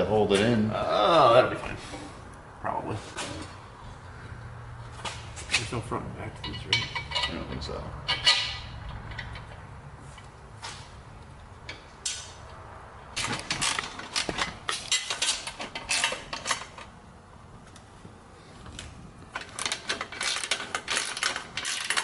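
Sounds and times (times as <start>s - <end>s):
metal clinking and rattling: 6.4s - 9.6s, 11.6s - 17.0s, 19.3s - 22.0s.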